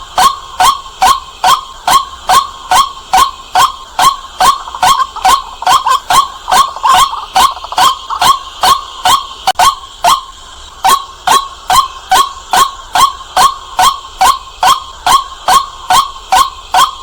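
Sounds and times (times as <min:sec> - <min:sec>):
waterhen harsh calls: 0:00.1 - 0:17.0.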